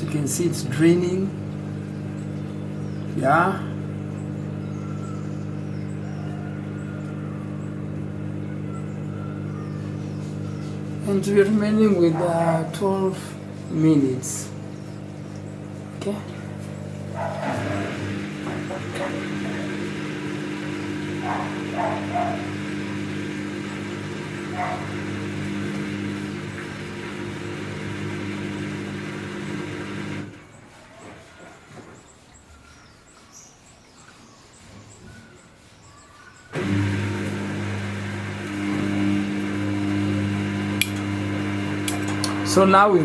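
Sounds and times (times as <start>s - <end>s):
washing machine drain pump humming: 0.0s - 30.6s, 36.5s - 43.0s
dog yipping: 17.2s - 18.0s, 21.2s - 22.5s, 24.6s - 24.9s.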